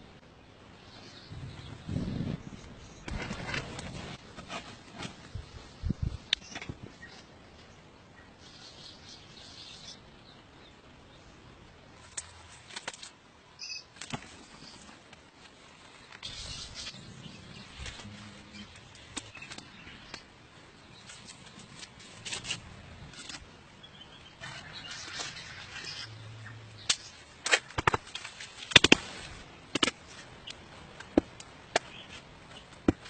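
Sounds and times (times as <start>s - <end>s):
rustling and scraping: 1.4s - 7.8s, 14.0s - 33.0s.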